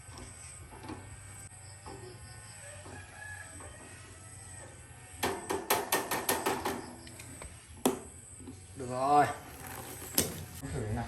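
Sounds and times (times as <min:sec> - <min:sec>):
rooster crowing: 0:02.4 - 0:05.1.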